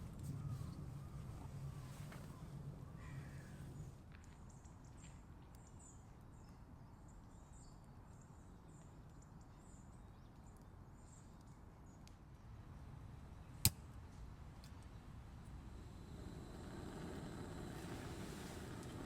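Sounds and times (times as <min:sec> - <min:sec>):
faint low outdoor background: 0:00.0 - 0:19.0
small high ticks: 0:14.6 - 0:19.0.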